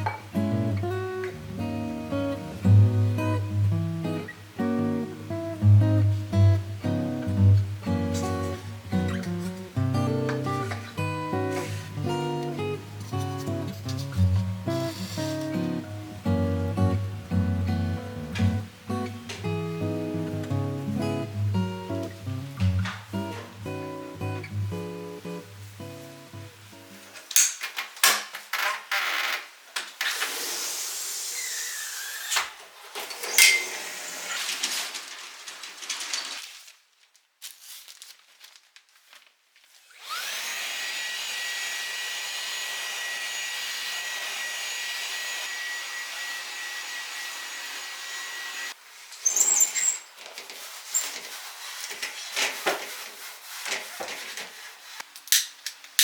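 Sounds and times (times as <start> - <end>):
brushing and scraping: 10.7 - 15.8, 48.8 - 55.1
small vacuum cleaner whine: 39.8 - 48.8.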